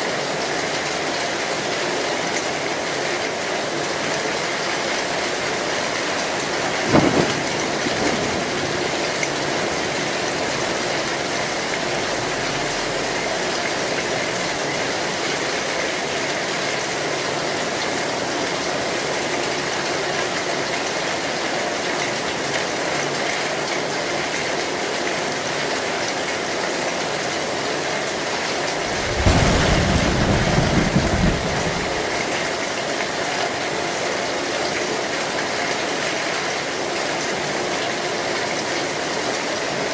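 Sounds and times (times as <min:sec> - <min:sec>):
heavy rain on a tin roof: 0:00.0 - 0:39.9
low roll of thunder: 0:06.2 - 0:15.2, 0:28.7 - 0:32.6
sharp thunder crack: 0:06.7 - 0:14.9, 0:28.7 - 0:32.5.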